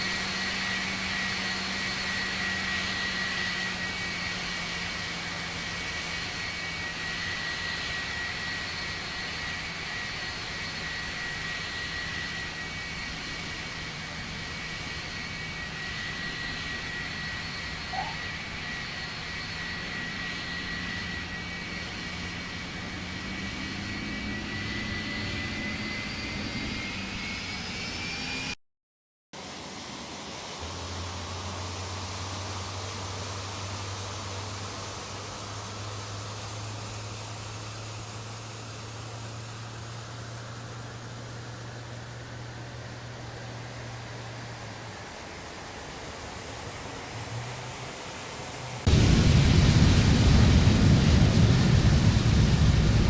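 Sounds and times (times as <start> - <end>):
jet engine whine: 0.0 - 28.6, 29.4 - 53.0
engine noise rush: 45.4 - 53.0
low hum: 48.8 - 53.0.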